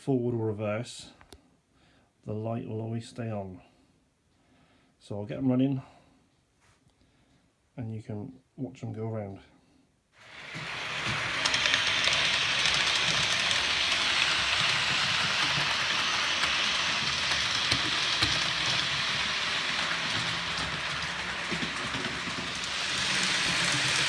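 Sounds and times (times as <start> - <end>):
model trains rattling over rails: 10.2 - 24.0.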